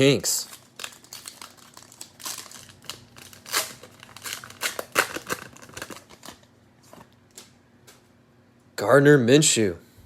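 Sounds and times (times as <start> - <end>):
cellophane tearing and crinkling: 0.2 - 7.5.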